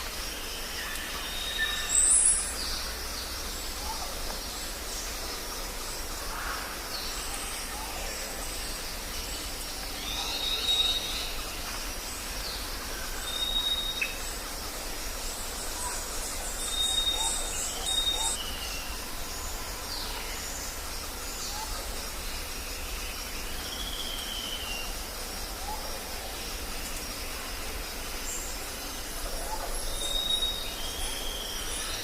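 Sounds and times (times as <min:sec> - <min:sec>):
steady background hiss: 0:00.0 - 0:32.0
bird calls: 0:15.3 - 0:25.0.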